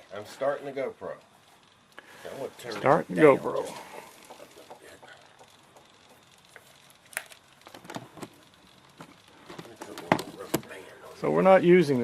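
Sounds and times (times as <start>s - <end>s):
faint clicks and taps: 3.5s - 10.9s.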